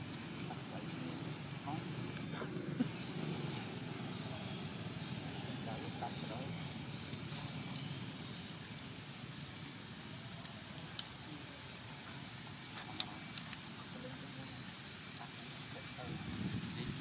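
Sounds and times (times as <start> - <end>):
outdoor background noise: 0.0 - 17.0
bird chirping: 0.5 - 8.6.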